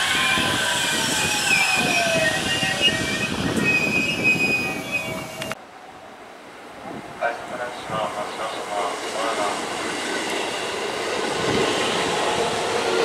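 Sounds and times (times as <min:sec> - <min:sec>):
train wheels rumbling: 0:00.0 - 0:05.6, 0:07.6 - 0:13.0
wheel and brake squeals: 0:00.0 - 0:05.6.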